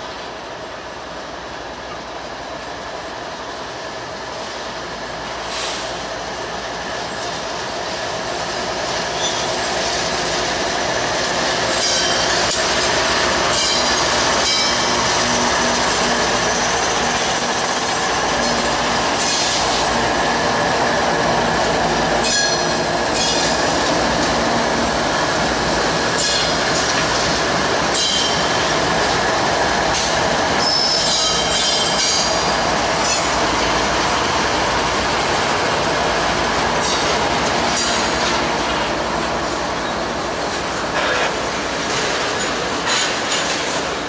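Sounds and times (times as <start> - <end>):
diesel locomotives passing: 0.0 - 44.0
wheels clattering on rail: 8.8 - 44.0
high-pitched wheel squeals: 30.6 - 32.4.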